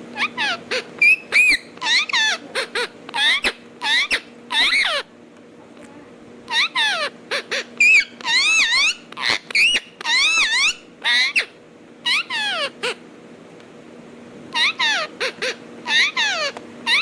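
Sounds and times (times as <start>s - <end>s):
parakeet calling: 0.1s - 5.1s, 6.4s - 13.0s, 14.5s - 17.0s.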